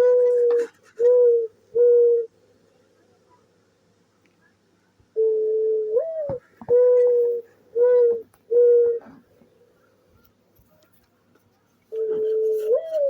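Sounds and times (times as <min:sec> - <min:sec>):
recorded bird cooing from speaker: 0:00.0 - 0:02.4, 0:05.1 - 0:09.2, 0:11.9 - 0:13.0.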